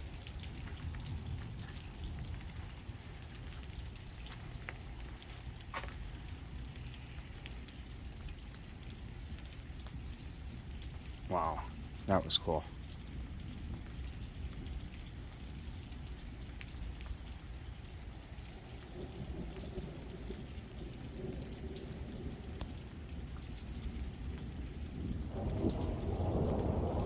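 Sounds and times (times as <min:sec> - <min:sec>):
rain falling: 0:00.0 - 0:27.0
thunder rolling: 0:25.0 - 0:27.0.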